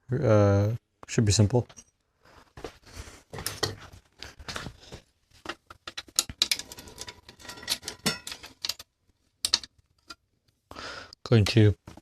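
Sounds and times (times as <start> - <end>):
metal tool clicks and rattling: 5.8 - 10.2.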